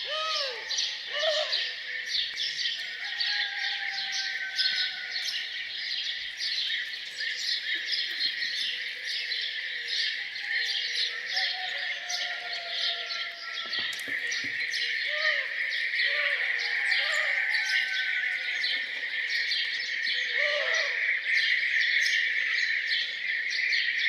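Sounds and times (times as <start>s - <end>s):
long low bird calls: 0.0s - 5.5s
songbirds chirping and twittering: 0.0s - 24.0s.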